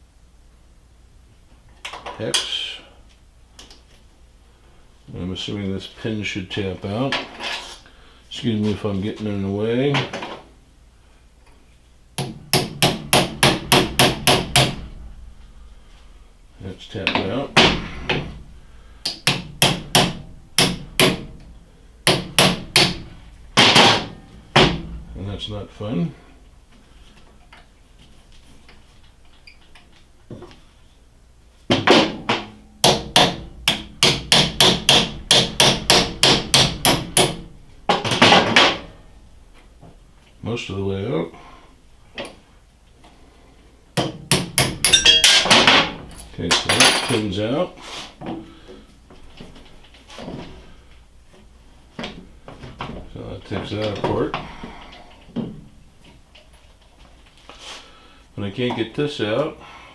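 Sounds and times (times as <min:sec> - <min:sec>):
hammer striking metal: 0:12.2 - 0:15.0, 0:19.0 - 0:21.4, 0:31.9 - 0:38.9, 0:44.0 - 0:47.1.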